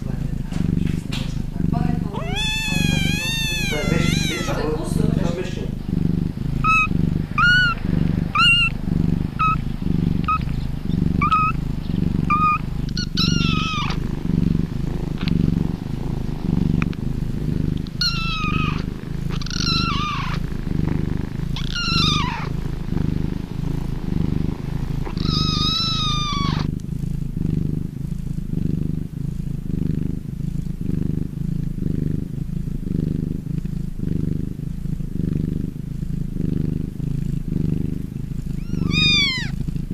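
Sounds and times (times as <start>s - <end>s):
cat purring: 0.0s - 39.9s
cat meowing: 2.0s - 5.4s, 6.6s - 8.8s, 9.4s - 9.6s, 10.2s - 10.6s, 11.2s - 11.6s, 12.2s - 14.1s, 17.9s - 20.4s, 21.5s - 22.6s, 25.0s - 26.7s, 38.6s - 39.6s.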